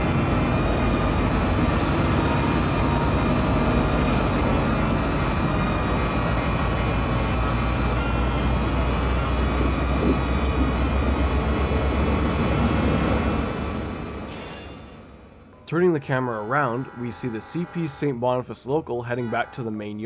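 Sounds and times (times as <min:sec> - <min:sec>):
steady whine: 0:00.0 - 0:14.3
diesel locomotive rumbling: 0:00.0 - 0:20.0.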